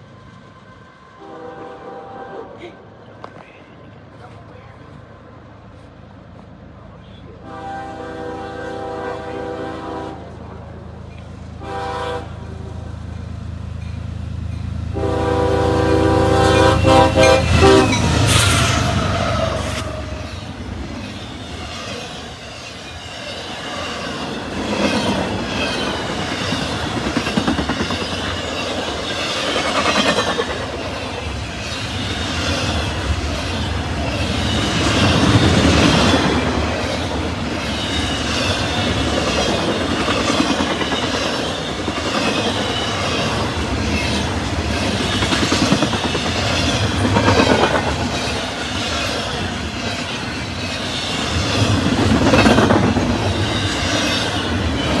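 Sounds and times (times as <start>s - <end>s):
freight train rolling past: 0.0s - 55.0s
wheels clicking over rail joints: 16.1s - 55.0s.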